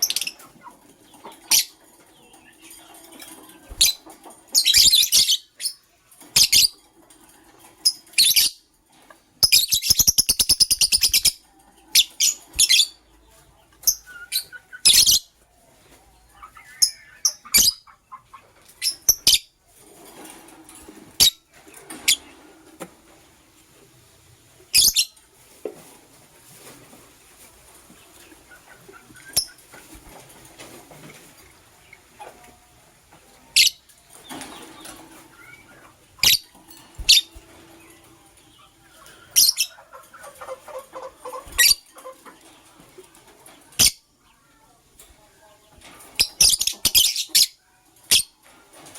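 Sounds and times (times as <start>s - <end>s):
birds chirping: 0.0s - 19.8s, 24.6s - 25.2s, 27.6s - 44.4s, 45.0s - 48.9s.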